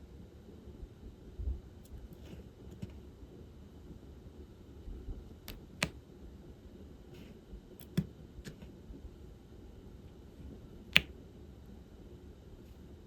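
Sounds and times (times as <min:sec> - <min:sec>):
light clicks and taps: 0:07.8 - 0:08.7.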